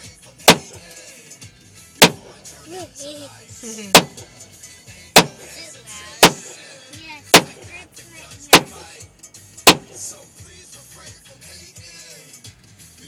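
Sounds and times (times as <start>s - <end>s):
pistol shots: 0.5s - 0.8s, 2.0s - 2.4s, 3.9s - 4.2s, 5.2s - 5.6s, 6.2s - 6.6s, 7.3s - 7.7s, 8.5s - 8.9s, 9.7s - 10.1s.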